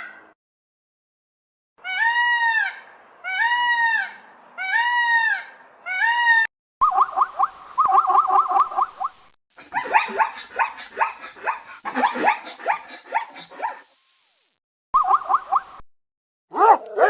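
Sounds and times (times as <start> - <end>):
chattering animal calls: 9.6 - 13.8.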